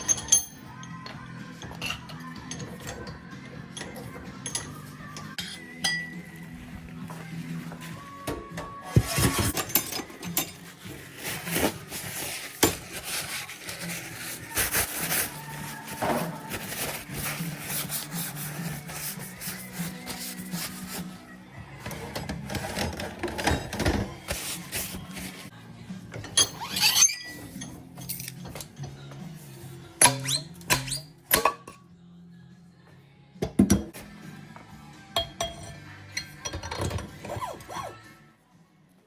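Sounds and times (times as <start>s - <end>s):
tools scraping and clicking on metal: 0.0s - 6.3s, 7.1s - 21.2s, 21.8s - 25.5s, 26.1s - 29.2s
background music: 0.0s - 39.0s.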